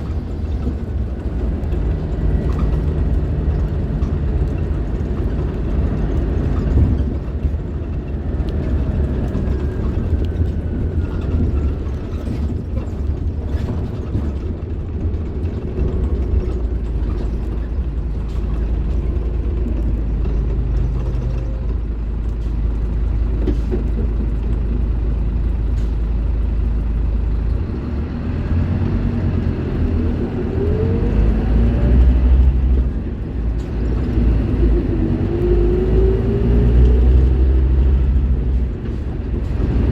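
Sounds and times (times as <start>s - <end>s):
bus diesel engine droning: 0.0s - 39.9s.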